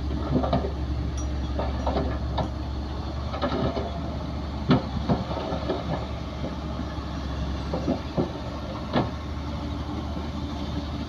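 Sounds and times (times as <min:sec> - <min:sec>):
diesel machinery rumbling: 0:00.0 - 0:11.0
metallic clanks and squeaks: 0:00.4 - 0:02.7.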